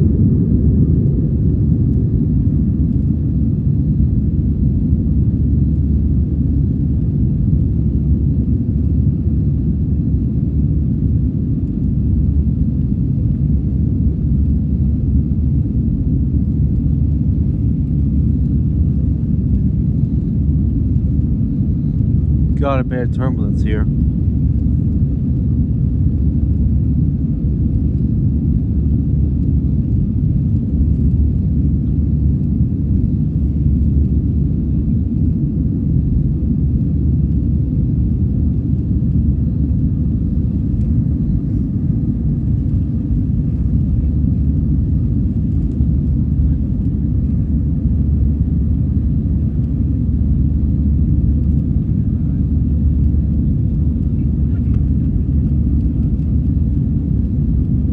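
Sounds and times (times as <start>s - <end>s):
airplane cabin engine rumble: 0.0s - 57.9s
faint even hum: 28.8s - 57.9s.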